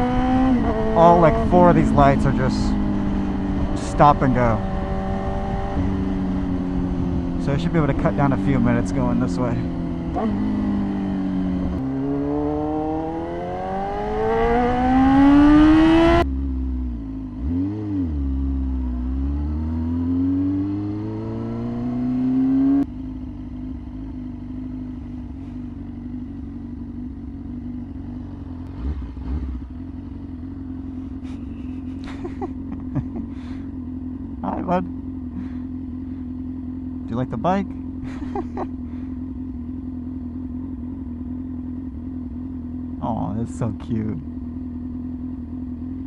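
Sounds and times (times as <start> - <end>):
motorcycle engine revving: 0.0 - 46.0
engine idling: 30.6 - 45.8.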